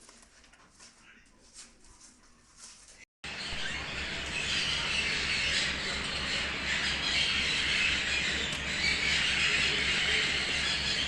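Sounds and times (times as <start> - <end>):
low steady hum: 3.3 - 11.0
small birds chattering and squawking: 3.3 - 11.0.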